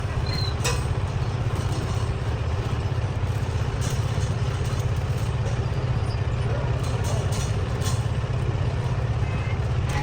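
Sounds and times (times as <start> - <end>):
heavy machinery rumbling: 0.0 - 10.0.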